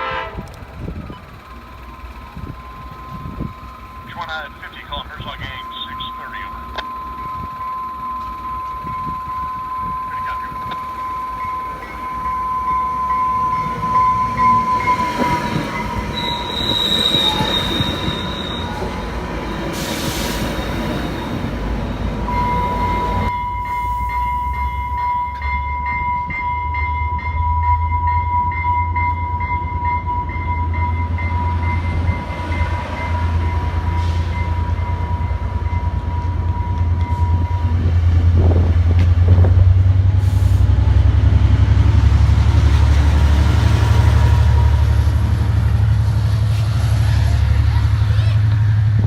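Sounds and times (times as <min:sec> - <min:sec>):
train rumbling by: 0:00.0 - 0:49.0
high-pitched tone: 0:01.1 - 0:19.6.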